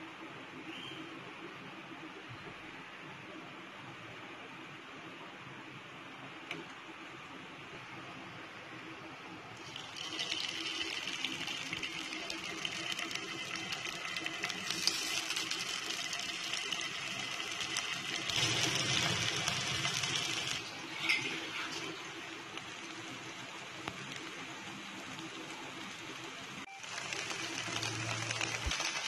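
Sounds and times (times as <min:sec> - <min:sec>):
prawns sizzling in oil: 0:09.6 - 0:29.0.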